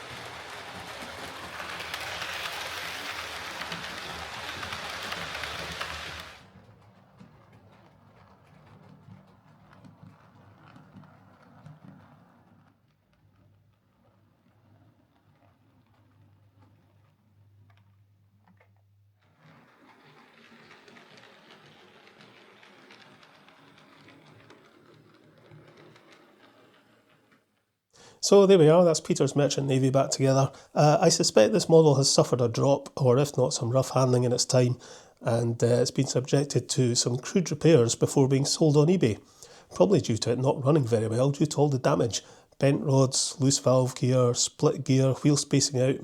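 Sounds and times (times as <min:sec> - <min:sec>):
model train running on track: 0:00.0 - 0:12.1, 0:19.7 - 0:27.2, 0:28.1 - 0:46.0.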